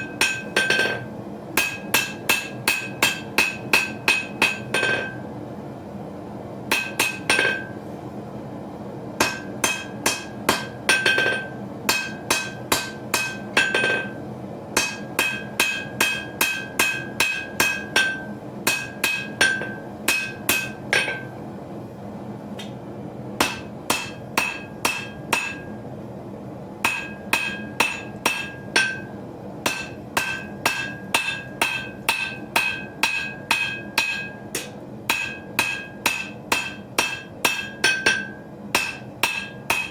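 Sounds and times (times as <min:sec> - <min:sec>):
hammer ringing on anvil: 0:00.0 - 0:05.3, 0:06.7 - 0:07.8, 0:09.2 - 0:14.2, 0:14.8 - 0:21.4, 0:23.4 - 0:25.8, 0:26.8 - 0:39.9.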